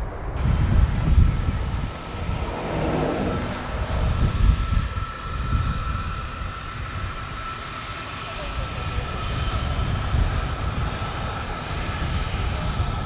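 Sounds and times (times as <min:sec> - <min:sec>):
aircraft engines running: 0:00.0 - 0:13.0.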